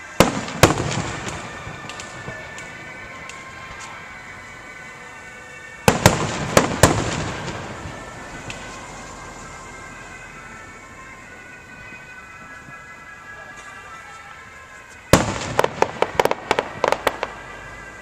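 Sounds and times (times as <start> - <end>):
fireworks bursting with loud bangs: 0.0 - 3.9, 5.8 - 10.1, 15.1 - 18.0.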